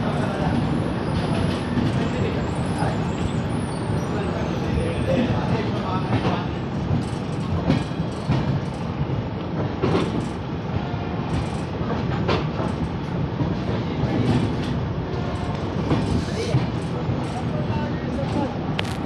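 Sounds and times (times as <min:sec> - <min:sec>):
train wheels rumbling on rail: 0:00.0 - 0:19.0
wheels clacking over rail joints: 0:05.2 - 0:19.0.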